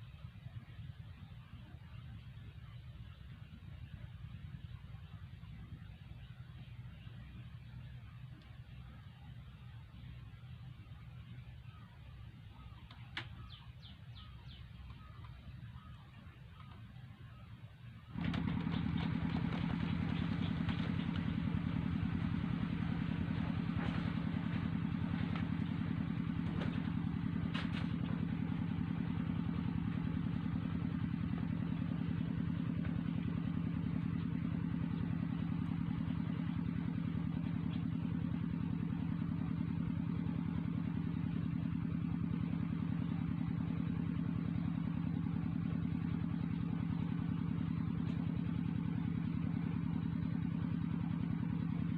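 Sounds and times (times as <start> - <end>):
small engine running: 18.1 - 51.9.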